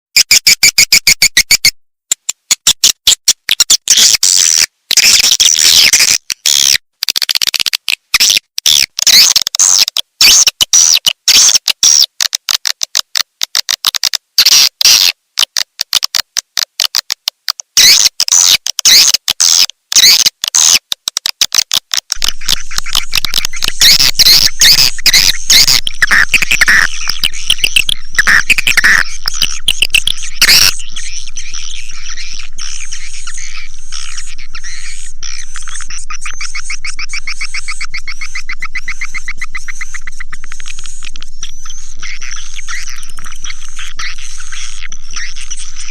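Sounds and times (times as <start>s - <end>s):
swiftlet chirps and twitters: 22.2s - 45.9s.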